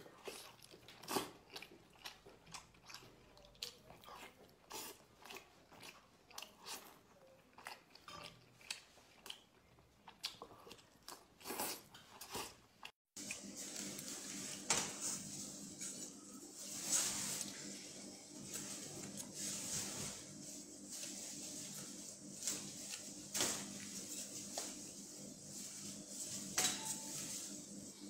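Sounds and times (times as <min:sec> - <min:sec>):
person chewing and biting food: 0:00.1 - 0:14.0.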